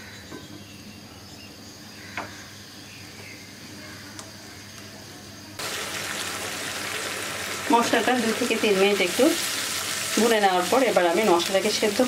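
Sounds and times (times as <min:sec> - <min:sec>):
paste sizzling in oil: 0:05.6 - 0:12.0.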